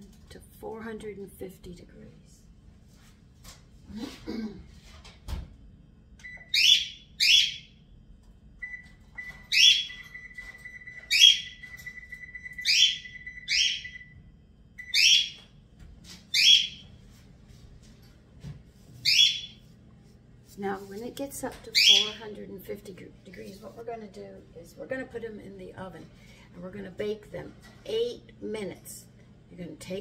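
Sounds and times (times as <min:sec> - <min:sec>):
bird chirping: 0:06.3 - 0:07.7, 0:14.8 - 0:15.4.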